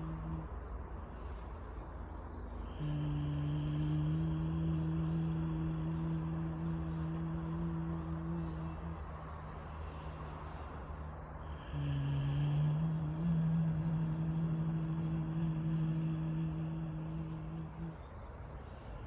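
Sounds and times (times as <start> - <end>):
person humming low notes: 0.0 - 0.7, 2.7 - 9.6, 11.4 - 18.2.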